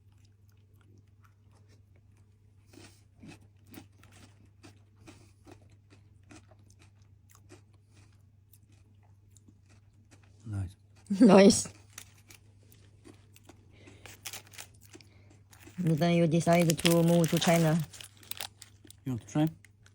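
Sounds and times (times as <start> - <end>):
person chewing crunchy snack: 0.0 - 19.9
low steady hum: 7.0 - 19.9.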